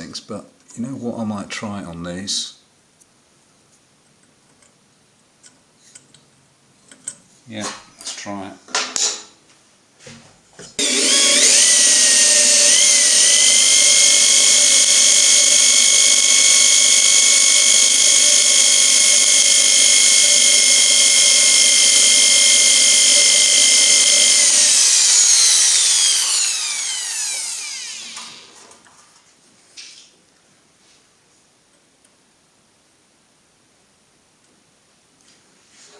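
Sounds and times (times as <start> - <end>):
electric drill whining: 10.8 - 28.6.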